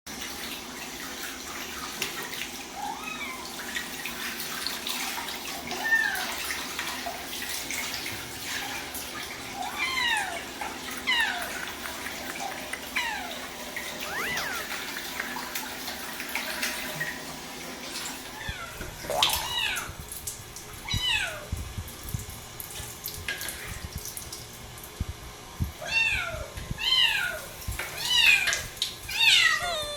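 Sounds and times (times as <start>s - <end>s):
running tap water: 0.1s - 29.9s
cats meowing: 9.5s - 15.1s, 18.3s - 20.0s, 20.8s - 21.5s, 25.8s - 29.9s.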